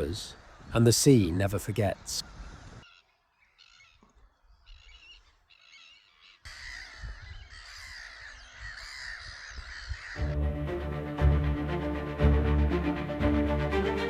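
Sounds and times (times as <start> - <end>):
birds calling: 0.0 - 11.9
music: 10.2 - 14.0.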